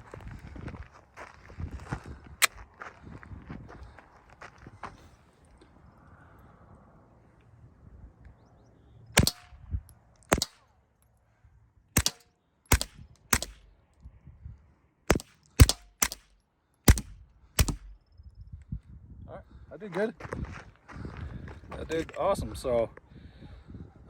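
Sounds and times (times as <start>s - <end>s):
suppressed pistol shots: 9.2s - 9.6s, 10.3s - 10.6s, 12.0s - 13.7s, 15.1s - 18.1s.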